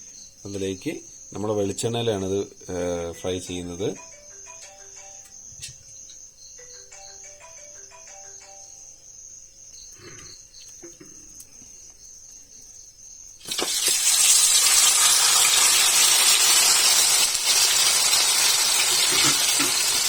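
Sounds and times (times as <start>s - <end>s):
fish sizzling in oil: 13.4s - 20.0s.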